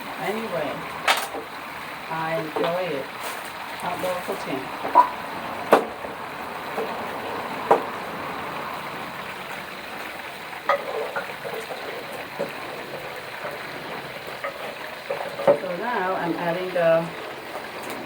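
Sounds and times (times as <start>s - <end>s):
oil sizzling: 0.0s - 18.0s
kitchen utensils knocking: 10.6s - 16.2s.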